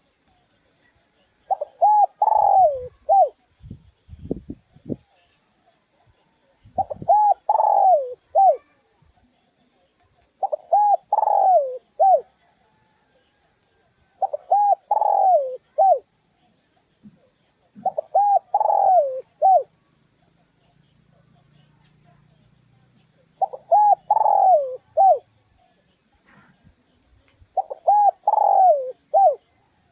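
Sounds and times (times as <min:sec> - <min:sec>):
dove cooing: 0:01.5 - 0:03.4, 0:06.7 - 0:08.8, 0:10.4 - 0:12.4, 0:14.2 - 0:16.1, 0:17.1 - 0:19.7, 0:23.2 - 0:25.3, 0:27.6 - 0:29.6.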